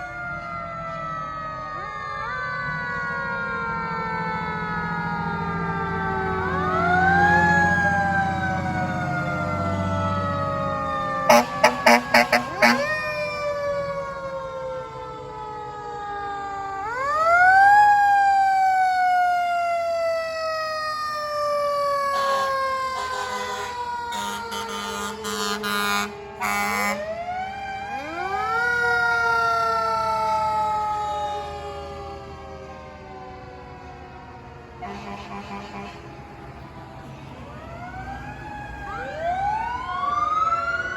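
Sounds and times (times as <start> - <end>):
fire truck siren wailing: 0.0 - 40.9
short horn blasts: 11.3 - 13.0, 23.0 - 27.0, 34.8 - 36.0.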